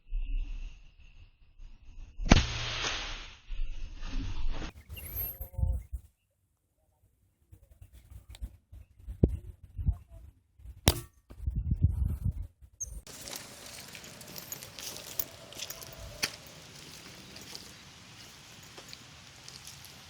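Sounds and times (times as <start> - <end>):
outdoor background: 0.0 - 20.0
air rifle shot: 10.9 - 11.1
rumbling handling noise: 13.1 - 20.0.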